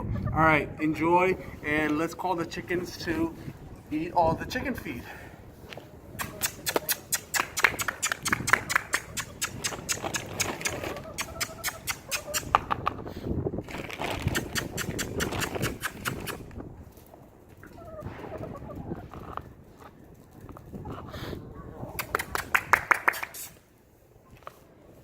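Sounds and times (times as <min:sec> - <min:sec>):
rapid sharp clicks: 0:06.2 - 0:12.6
chicken calls: 0:06.2 - 0:13.2, 0:17.6 - 0:19.9.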